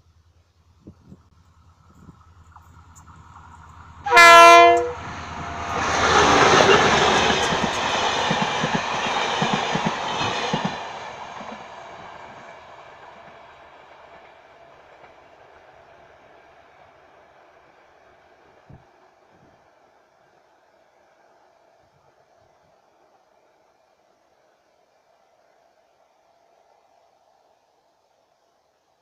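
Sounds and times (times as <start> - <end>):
loud horn blast: 4.0 - 5.1.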